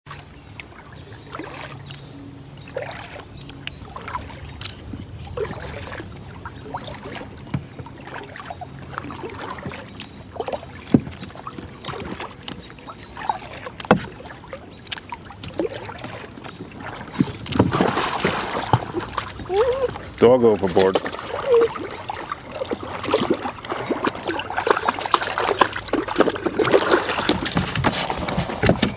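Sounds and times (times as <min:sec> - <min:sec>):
paddle strokes dripping water: 0:00.0 - 0:28.9
paddle knocking against hull: 0:06.9 - 0:14.3, 0:14.9 - 0:21.8, 0:22.6 - 0:28.9.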